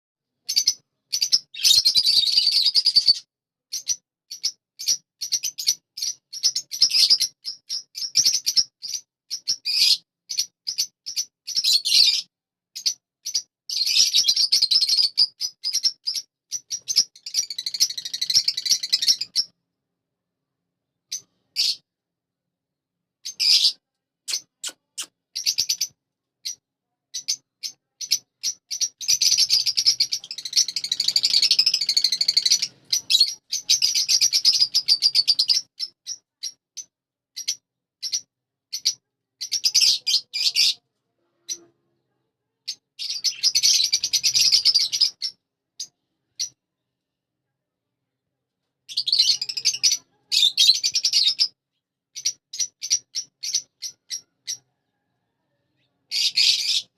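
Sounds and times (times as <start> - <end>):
budgerigars chattering and warbling: 3.8 - 19.5, 27.2 - 36.6.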